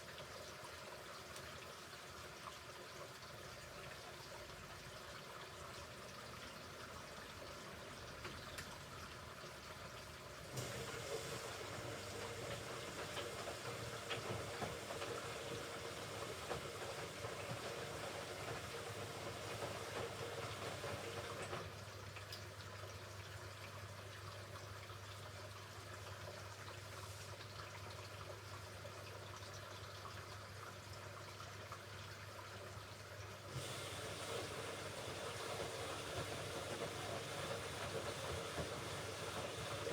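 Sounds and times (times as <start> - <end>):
washing machine water sloshing: 9.8 - 23.0, 33.2 - 39.9.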